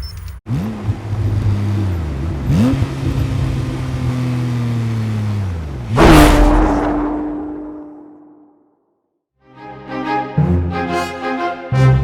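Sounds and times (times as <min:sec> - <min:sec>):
car engine revving: 0:00.5 - 0:08.4
loud hit with held tone: 0:06.0 - 0:08.5.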